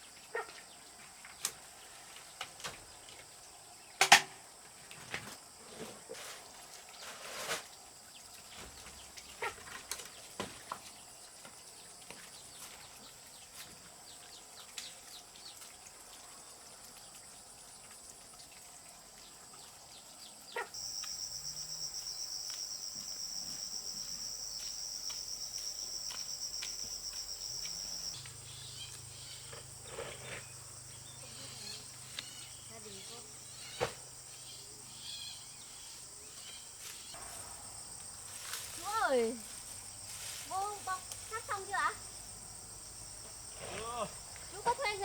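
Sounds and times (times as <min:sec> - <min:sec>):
insects chirring: 0:20.5 - 0:45.0.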